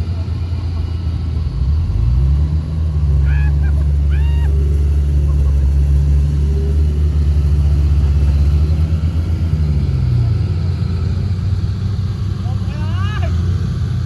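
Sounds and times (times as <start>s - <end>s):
bulldozer diesel engine droning: 0.0s - 14.0s.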